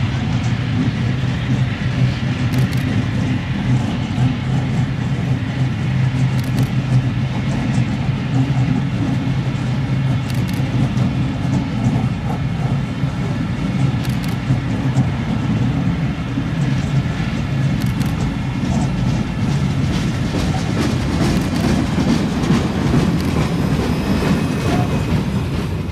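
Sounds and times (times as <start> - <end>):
train wheel rumble: 0.0 - 25.9
wheels clicking over track: 6.1 - 12.8, 16.6 - 25.7.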